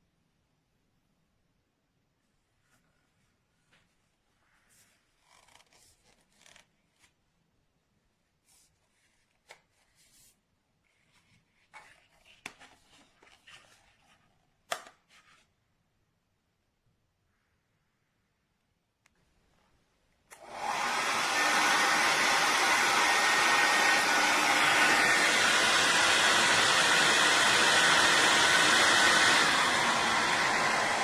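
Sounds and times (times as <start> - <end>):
faint rustling and handling: 2.2 - 15.8.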